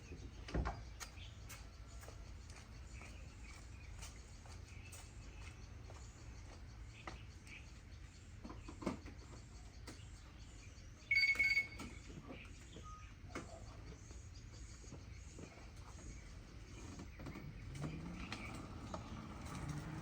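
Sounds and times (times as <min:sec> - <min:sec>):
short electronic beep: 0:11.1 - 0:11.9.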